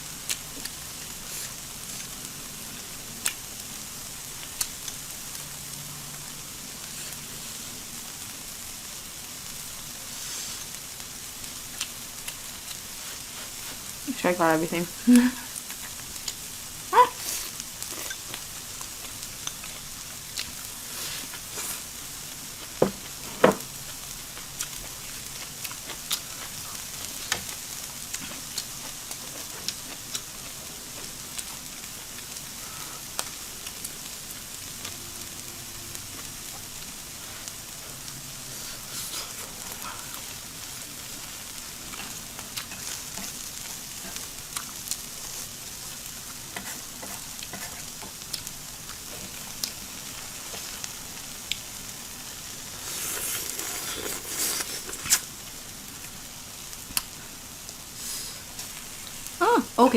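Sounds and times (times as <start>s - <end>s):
food sizzling on a grill: 0.0s - 59.9s.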